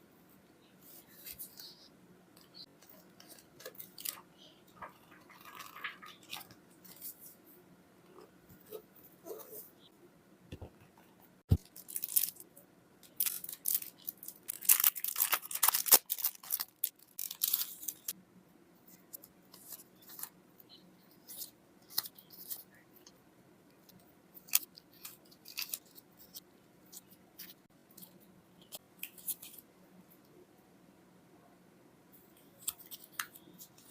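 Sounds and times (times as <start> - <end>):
packaging rustles and snaps: 13.0 - 18.1.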